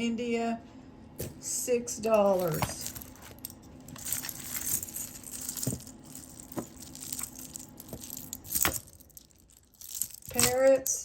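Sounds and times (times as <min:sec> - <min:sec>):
jewelry beads clicking and rattling: 0:02.2 - 0:10.9.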